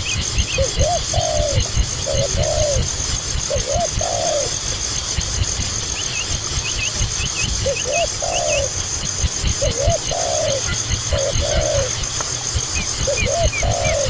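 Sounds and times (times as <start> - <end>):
small bird chirping: 0.0 - 5.1, 5.8 - 14.0
dove cooing: 0.6 - 4.7, 7.6 - 14.0.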